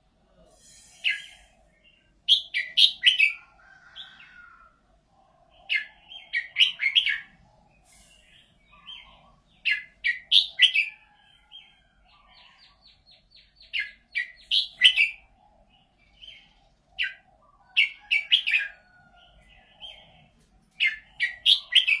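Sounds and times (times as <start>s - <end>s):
bird whistling song: 0.6s - 3.4s, 5.7s - 11.0s, 13.6s - 15.4s, 20.8s - 22.0s
bird trill: 0.6s - 4.4s, 5.7s - 11.0s, 20.8s - 22.0s.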